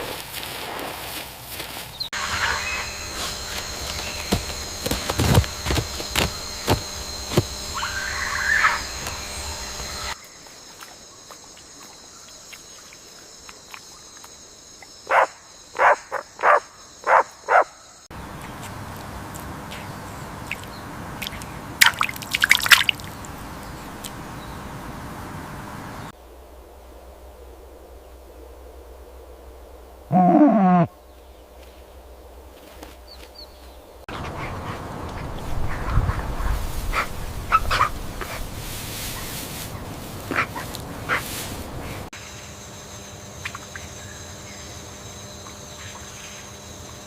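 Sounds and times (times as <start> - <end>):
animal calling: 2.2 - 10.2, 30.1 - 31.0
low steady hum: 2.2 - 10.2.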